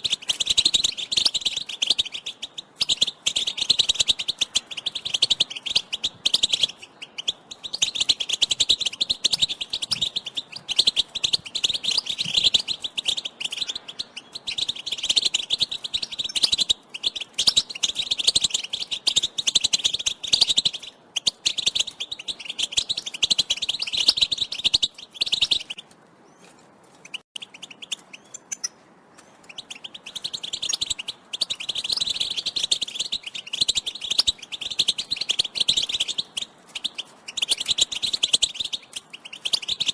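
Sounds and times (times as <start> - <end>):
goldfinch chirping and twittering: 0.0 - 39.9.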